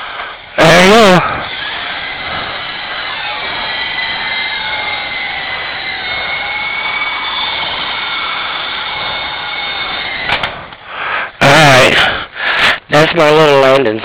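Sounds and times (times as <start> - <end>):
toy helicopter rotor whine: 0.0 - 14.0
sharp clicks: 9.8 - 10.9.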